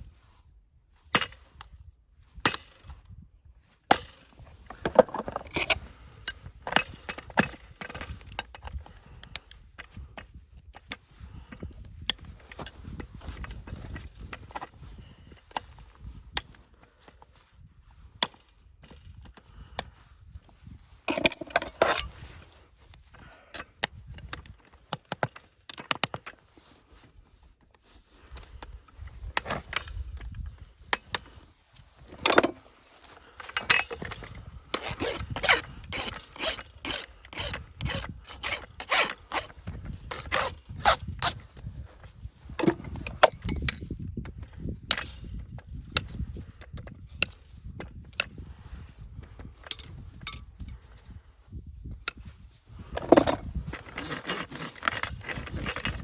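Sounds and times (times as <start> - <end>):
rasp filing a hoof: 33.6 - 41.5, 52.9 - 56.0.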